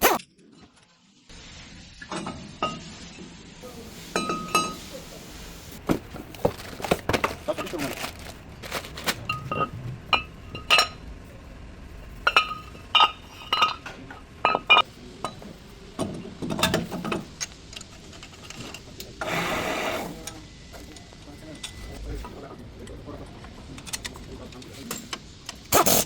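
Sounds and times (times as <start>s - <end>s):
metal tools clinking: 12.2s - 15.4s.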